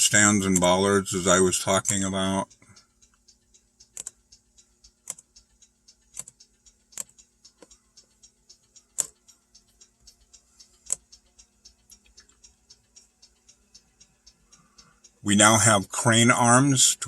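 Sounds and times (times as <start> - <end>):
fast even ticking: 0.0 - 17.0
steady low hum: 0.0 - 17.0
sharp clicks: 1.7 - 15.2.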